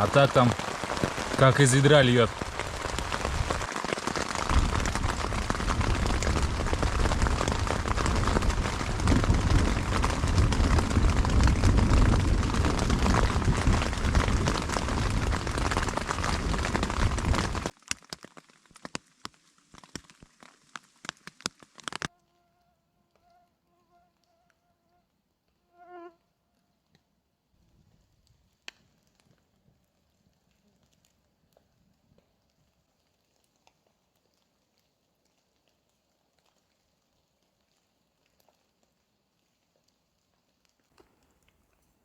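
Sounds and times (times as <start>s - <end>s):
heavy rain on a tent: 0.0s - 22.1s.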